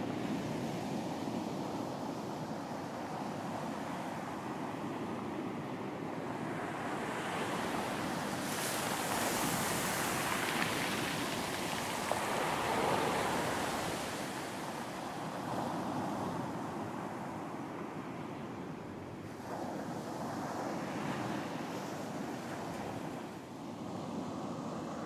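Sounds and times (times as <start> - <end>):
wind: 0.0 - 25.0
ocean waves breaking: 6.4 - 16.5.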